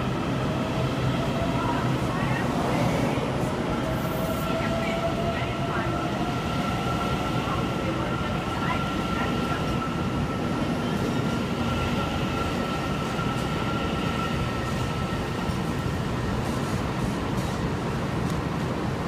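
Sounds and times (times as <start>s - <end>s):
train high whine: 0.0s - 19.0s.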